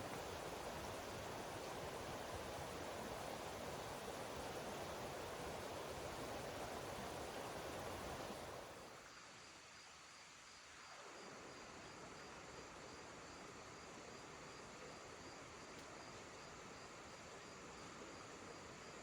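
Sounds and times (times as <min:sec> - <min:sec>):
creek rushing: 0:00.0 - 0:08.9
crickets chirping: 0:00.0 - 0:19.0.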